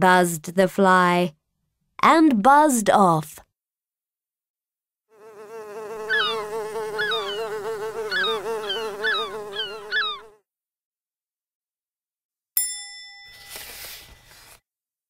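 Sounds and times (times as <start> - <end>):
fly buzzing: 5.1 - 10.4
short chirping swoops: 6.1 - 7.5.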